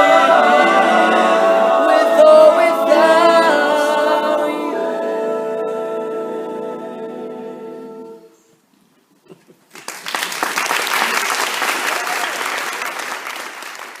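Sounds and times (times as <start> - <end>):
vocal group holding a chord: 0.0 - 8.4
audience applause: 9.7 - 14.0.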